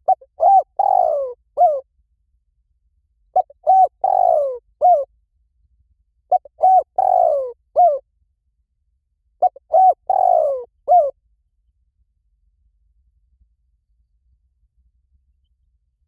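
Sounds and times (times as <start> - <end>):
dove cooing: 0.0 - 1.8, 3.4 - 5.1, 6.3 - 8.0, 9.4 - 11.2.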